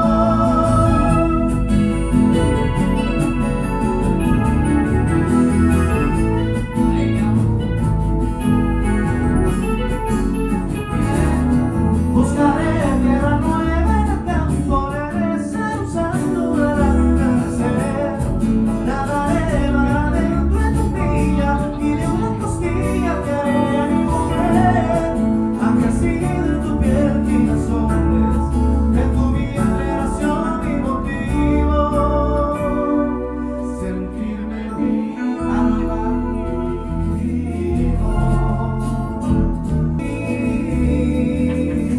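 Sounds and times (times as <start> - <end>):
wavering lead melody: 0.0 - 14.4
band playing a song: 0.0 - 41.9
strong bass line: 0.0 - 41.9.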